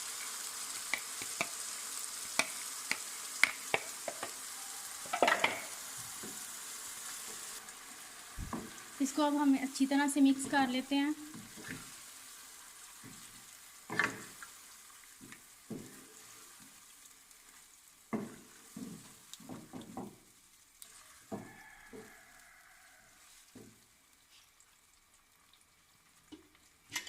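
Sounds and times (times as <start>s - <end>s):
chicken sizzling in hot oil: 0.0s - 27.0s
spoon scraping and knocking pan: 0.9s - 1.6s, 2.4s - 4.4s, 5.0s - 6.4s, 18.1s - 20.2s, 21.3s - 22.1s.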